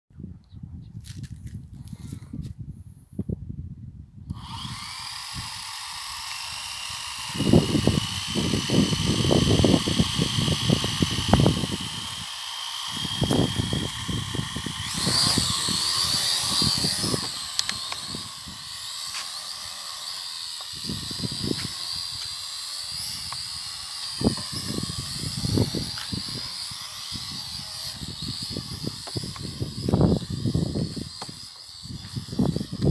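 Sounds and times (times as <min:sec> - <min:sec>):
wind buffeting microphone: 0:00.1 - 0:19.2, 0:20.7 - 0:32.9
drone propellers whining: 0:04.3 - 0:32.9.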